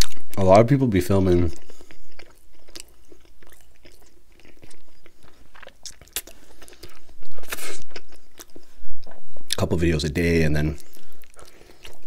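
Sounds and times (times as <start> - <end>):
wet chewing mouth smacks: 1.6 - 9.6, 10.8 - 12.0.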